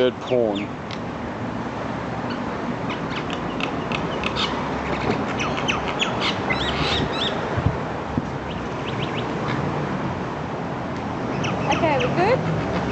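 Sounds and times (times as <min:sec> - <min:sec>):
birds squawking and chirping: 0:00.2 - 0:00.8, 0:02.2 - 0:07.5, 0:08.4 - 0:09.5, 0:11.2 - 0:12.9.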